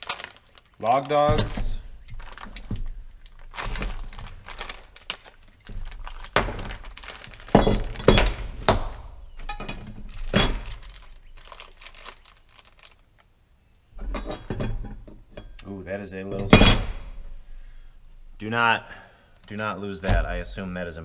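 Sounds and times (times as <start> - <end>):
plastic crinkling and rustling: 0.0 - 13.4
knocks and thunks: 1.2 - 3.0, 5.6 - 10.8.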